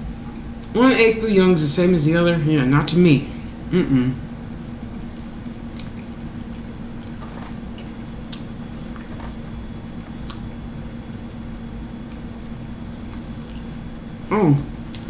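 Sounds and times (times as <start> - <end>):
steady low hum: 0.0 - 15.0
wet mouth clicks: 5.2 - 8.5, 10.2 - 11.0
closed-mouth chewing of food: 5.2 - 11.4, 12.1 - 13.7.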